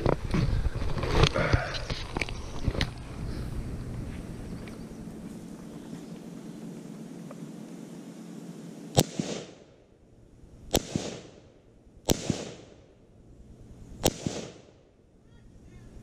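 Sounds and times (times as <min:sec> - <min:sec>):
sharp echoing bangs: 0:08.9 - 0:09.8, 0:10.7 - 0:13.0, 0:14.0 - 0:14.9.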